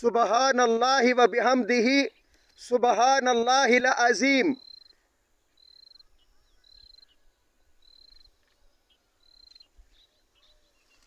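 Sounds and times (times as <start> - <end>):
faint cricket chirping: 4.3 - 11.0.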